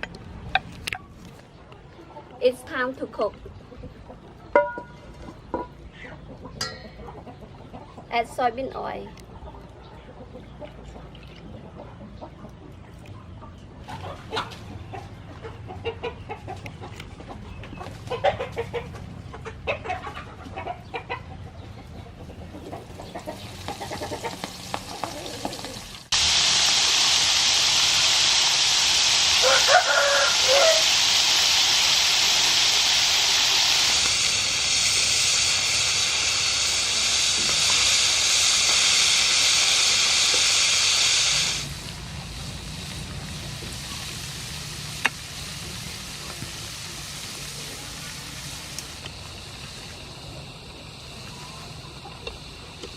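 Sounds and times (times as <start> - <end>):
chickens clucking: 0.0 - 26.2, 27.2 - 52.9
food frying in oil: 23.0 - 52.9.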